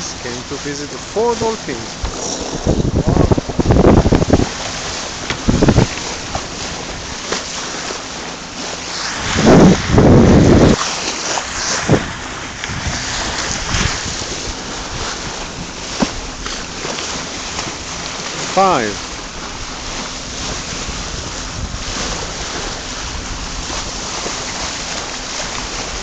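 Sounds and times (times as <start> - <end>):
wind buffeting microphone: 0.0 - 10.8, 11.4 - 26.0
sea water rushing along hull: 0.0 - 26.0.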